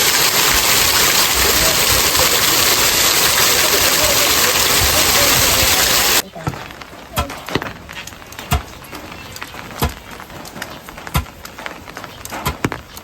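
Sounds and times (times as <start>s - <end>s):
sharp knocks and clicks: 6.4s - 13.0s.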